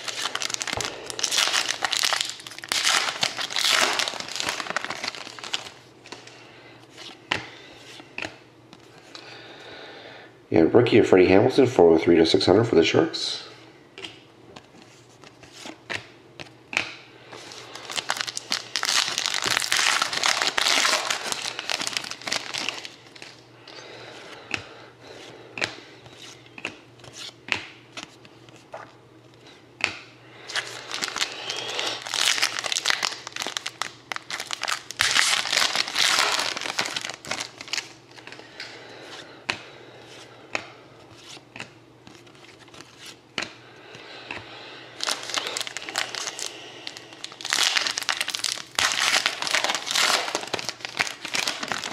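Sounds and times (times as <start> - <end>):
foil wrappers crinkling and tearing: 0.0 - 6.3, 17.4 - 23.4, 30.4 - 38.5, 45.0 - 51.9
cards clicking and tapping: 14.0 - 17.0, 25.6 - 28.4, 40.5 - 43.6.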